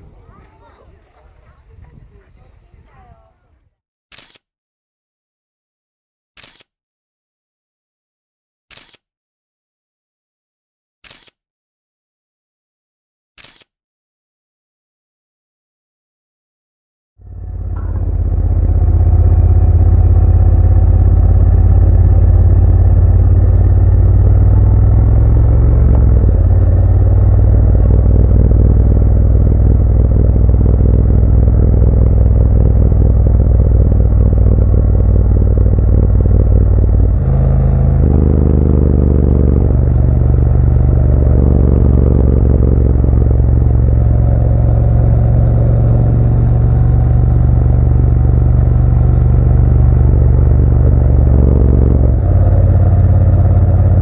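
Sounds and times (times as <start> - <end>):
motorcycle engine accelerating: 0.0 - 3.3, 17.2 - 54.0.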